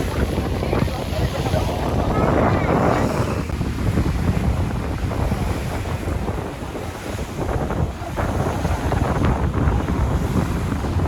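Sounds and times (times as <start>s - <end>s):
rushing water: 0.0s - 11.0s
wind buffeting microphone: 0.0s - 11.0s.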